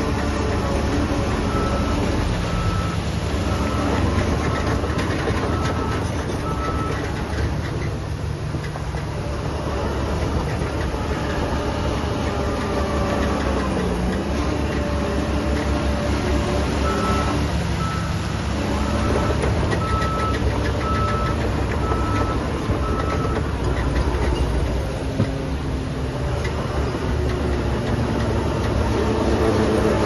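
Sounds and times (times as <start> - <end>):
diesel engine running: 0.0 - 30.0
reversing alarm beeps: 1.5 - 4.1, 16.8 - 18.2, 18.8 - 23.4.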